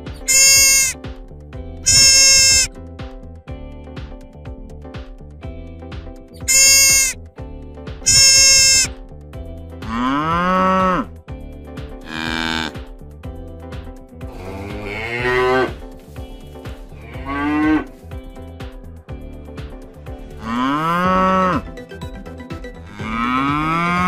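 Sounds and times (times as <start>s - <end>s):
faint background music: 0.0s - 24.0s
deer calls: 0.2s - 1.0s, 1.9s - 2.7s, 6.5s - 7.2s, 8.1s - 8.9s
cattle mooing: 0.3s - 1.0s, 1.9s - 2.7s, 6.5s - 7.2s, 8.1s - 8.9s, 9.9s - 11.1s, 12.1s - 12.8s, 14.3s - 15.8s, 20.4s - 21.6s, 23.0s - 24.0s.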